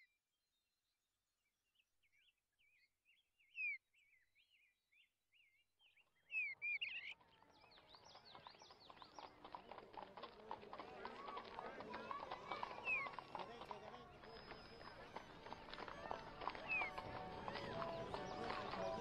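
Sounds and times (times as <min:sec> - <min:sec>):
small birds chirping: 0:01.4 - 0:19.0
mixed background noise: 0:09.4 - 0:19.0.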